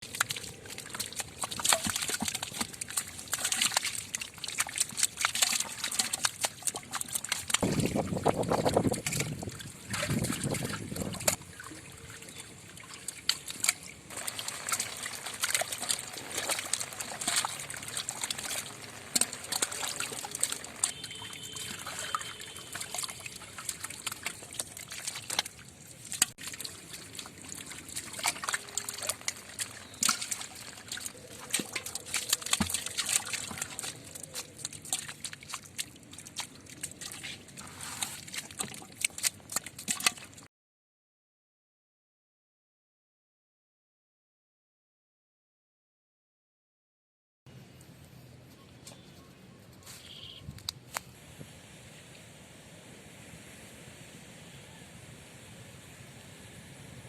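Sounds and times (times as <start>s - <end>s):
small splashes and clicks: 0.0s - 40.5s
water sloshing and trickling: 0.0s - 40.5s.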